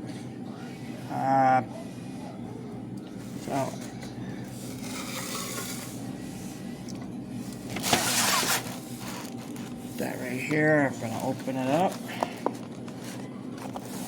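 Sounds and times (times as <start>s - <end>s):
packaging rubbing and scraping: 4.5s - 6.0s, 7.7s - 14.0s
packaging crinkling rustle: 7.6s - 14.0s.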